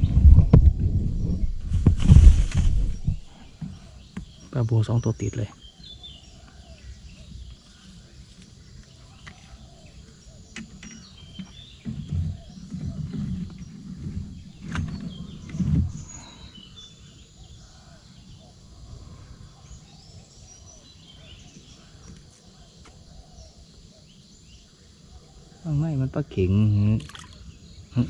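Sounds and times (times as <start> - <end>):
low thumps and knocks: 0.0 - 4.4, 10.6 - 16.2
small birds chirping: 0.0 - 28.0.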